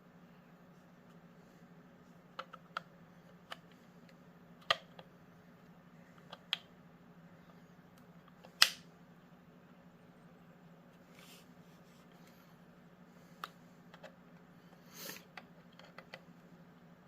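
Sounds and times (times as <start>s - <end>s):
plastic clicks and snaps: 7.9s - 8.9s.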